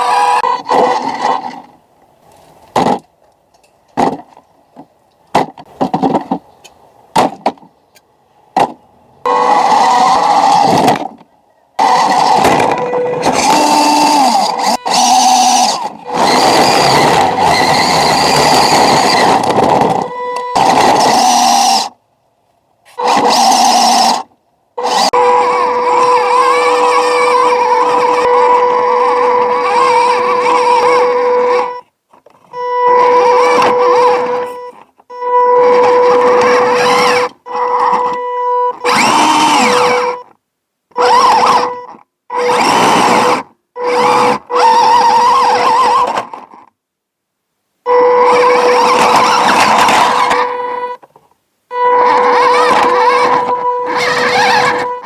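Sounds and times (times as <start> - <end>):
model truck electric motors whining: 0.0 - 1.8, 9.2 - 22.0, 22.9 - 31.8, 32.4 - 40.3, 40.9 - 46.7, 47.9 - 51.1, 51.7 - 55.0
sharp clicks and knocks: 2.3 - 8.8.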